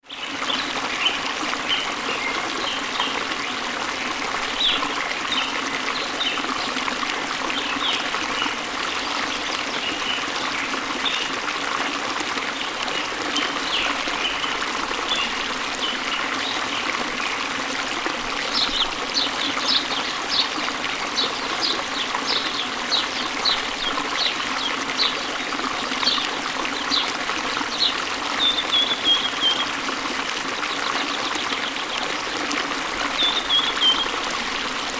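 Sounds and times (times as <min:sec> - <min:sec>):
trickling stream: 0:00.0 - 0:34.9
birds singing and chirping: 0:27.7 - 0:29.8, 0:33.1 - 0:34.2.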